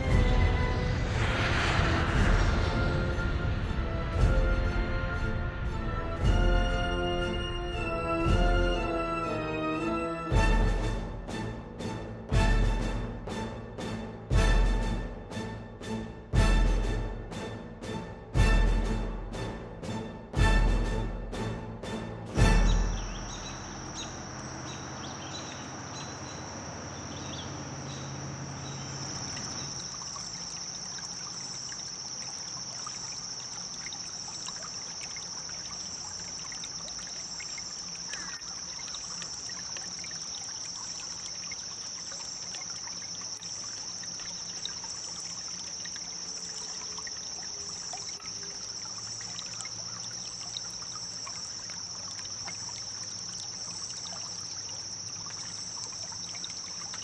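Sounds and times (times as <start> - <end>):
river water over gravel: 0.0 - 10.4, 22.4 - 57.0
background music: 0.0 - 23.6.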